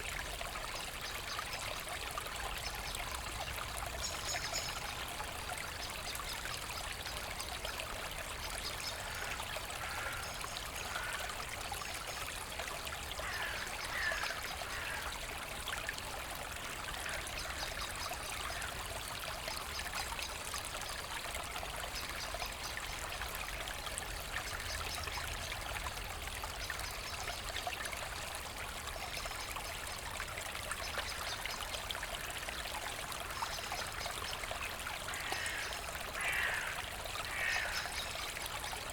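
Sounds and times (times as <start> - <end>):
brook babbling: 0.0 - 38.9.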